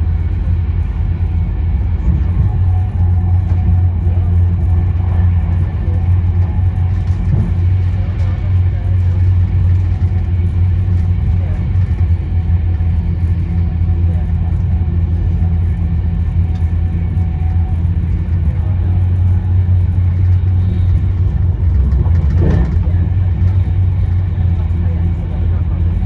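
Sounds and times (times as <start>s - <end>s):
train rumbling inside carriage: 0.0s - 26.0s.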